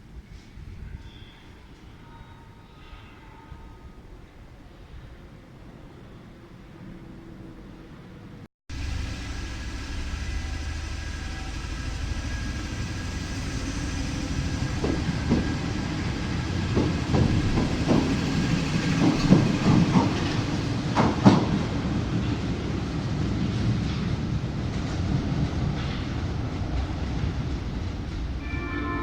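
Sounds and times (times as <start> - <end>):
train rumbling on rails: 2.8 - 29.0
wheels clicking over rail joints: 8.7 - 28.4
faint whines: 8.8 - 16.8.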